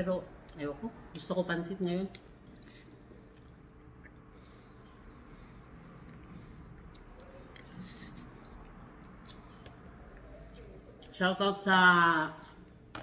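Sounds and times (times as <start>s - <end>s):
low steady hum: 0.0s - 13.0s
chewing and wet mouth smacks: 2.1s - 11.2s.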